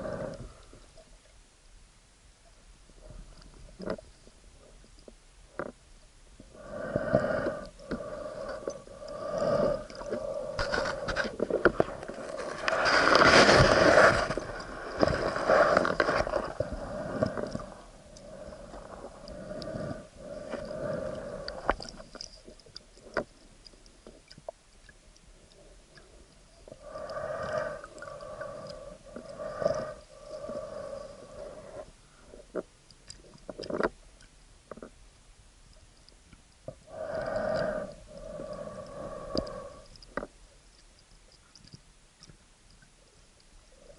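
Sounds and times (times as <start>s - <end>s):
diver breathing underwater: 0.0s - 0.8s, 6.5s - 22.3s, 25.6s - 32.5s, 36.8s - 40.3s.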